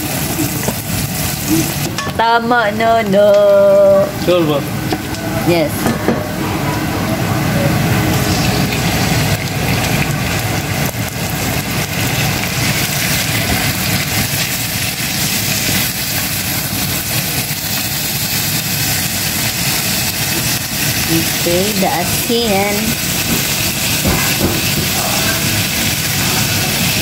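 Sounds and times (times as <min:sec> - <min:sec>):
meat sizzling in a frying pan: 0:00.0 - 0:02.8, 0:08.1 - 0:27.0
steady low hum: 0:00.0 - 0:17.6.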